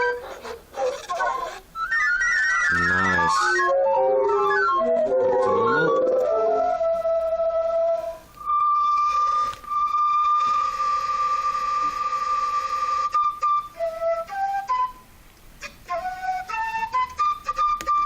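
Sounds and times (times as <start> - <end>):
held synthesizer tone: 2.7 - 6.9.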